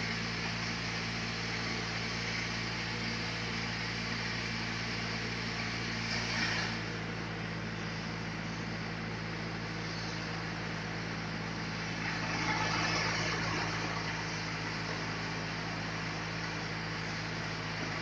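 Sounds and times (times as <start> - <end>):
engine humming: 0.0 - 18.0
machinery rasp: 4.2 - 7.0, 11.8 - 18.0.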